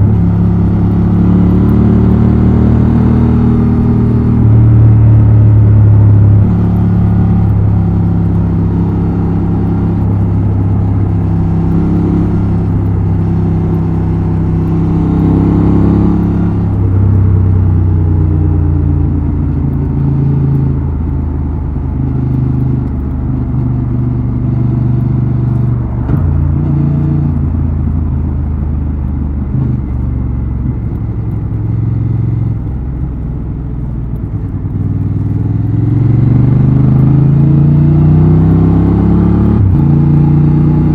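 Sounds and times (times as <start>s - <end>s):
motorcycle engine revving: 0.0s - 33.2s, 33.8s - 40.9s.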